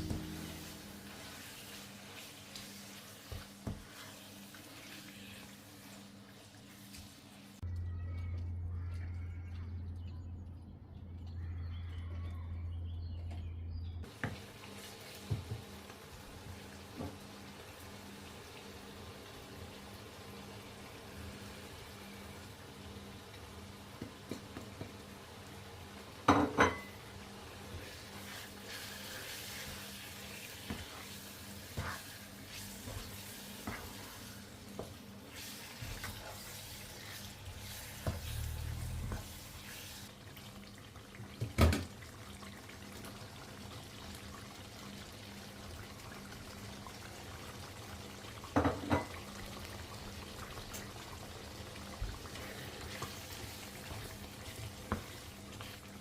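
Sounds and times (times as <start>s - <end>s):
water running from tap: 0.0s - 7.6s, 14.1s - 56.0s
dishes clinking and knocking: 26.3s - 27.0s, 48.6s - 49.2s.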